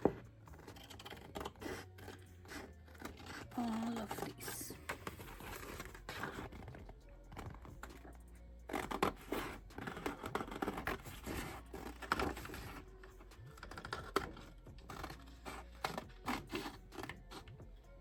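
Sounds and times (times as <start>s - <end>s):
scissors snipping paper: 0.0s - 6.8s, 13.5s - 17.5s.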